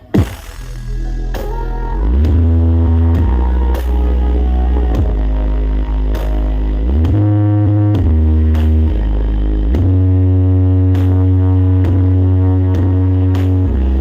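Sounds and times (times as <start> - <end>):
loud electronic jingle music: 0.0 - 8.1.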